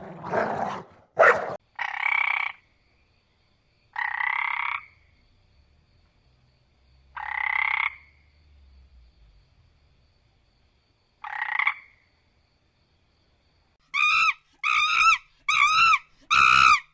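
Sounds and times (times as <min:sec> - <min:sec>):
animal calling: 0:00.0 - 0:01.6.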